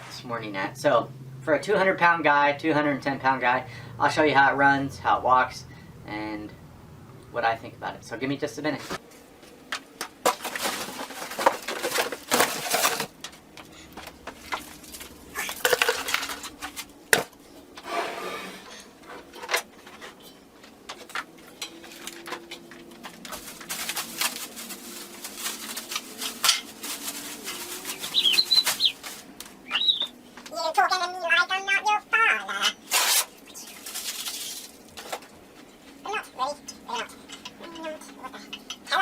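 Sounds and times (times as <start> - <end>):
objects clattering and knocking: 8.9 - 29.4, 33.8 - 35.6.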